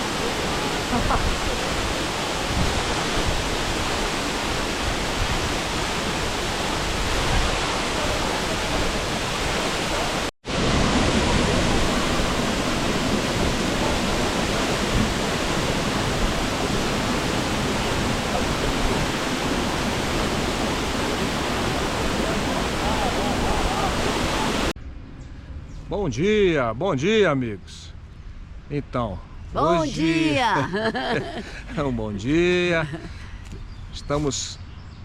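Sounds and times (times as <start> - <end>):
waterfall rushing: 0.0 - 24.8.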